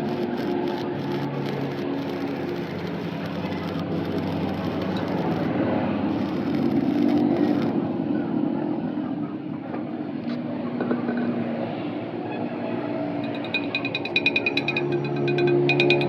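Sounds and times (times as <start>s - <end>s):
engine humming: 0.0s - 12.2s.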